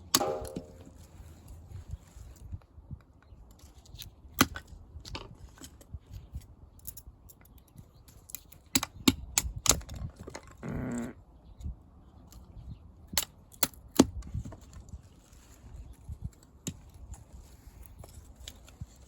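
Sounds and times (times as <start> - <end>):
firewood knocking: 0.1 - 1.0.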